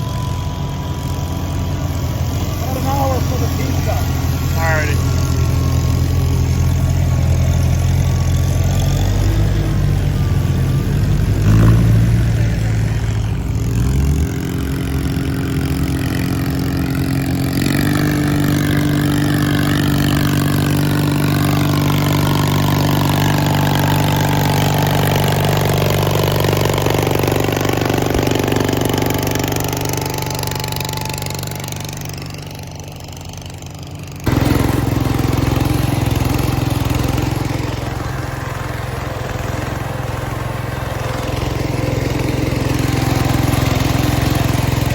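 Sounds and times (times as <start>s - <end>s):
small tractor engines running: 0.0s - 44.9s.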